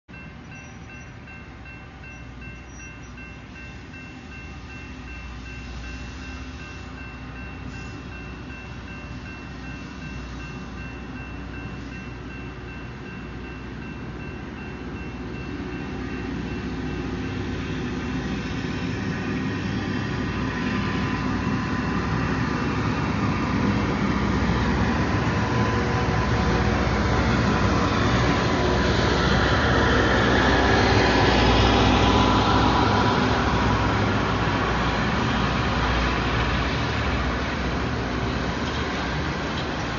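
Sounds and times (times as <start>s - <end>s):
crossing bell ringing: 0.1s - 18.3s
train engines and wheels passing: 0.1s - 39.9s.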